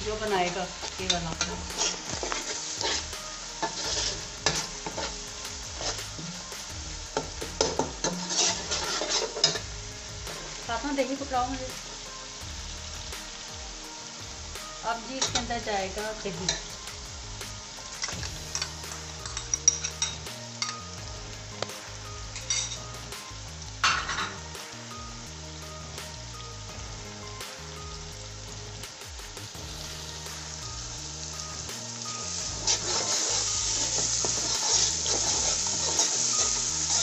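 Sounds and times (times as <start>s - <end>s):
masala sizzling in hot oil: 0.0s - 37.0s
stirring in a pot: 0.5s - 9.7s, 32.4s - 37.0s.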